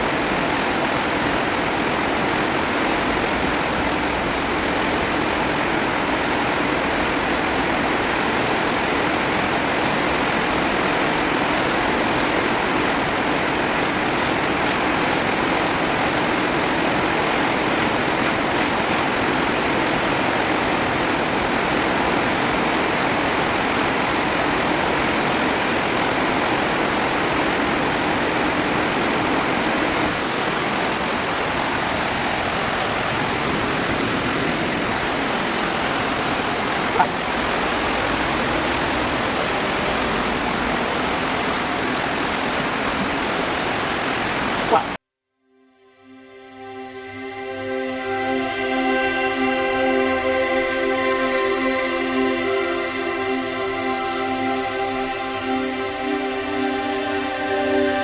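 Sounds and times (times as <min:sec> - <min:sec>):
rain: 0:00.0 - 0:45.0
wind: 0:00.0 - 0:45.0.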